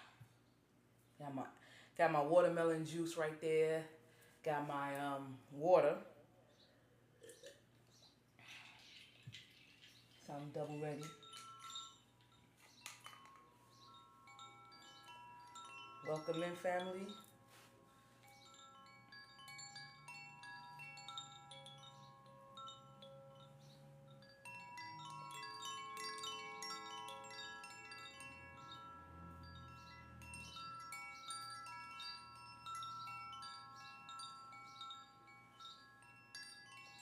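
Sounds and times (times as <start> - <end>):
wind chimes ringing: 8.4 - 37.0.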